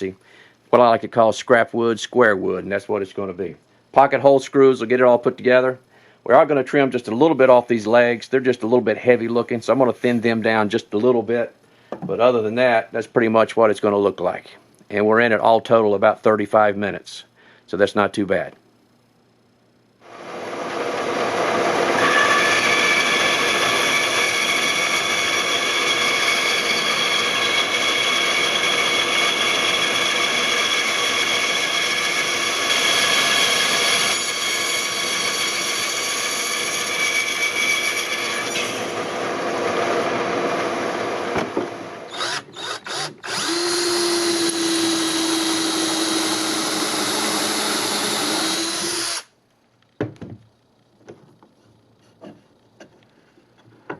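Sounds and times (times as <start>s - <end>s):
electric power tool running: 20.1s - 35.4s, 42.1s - 49.3s.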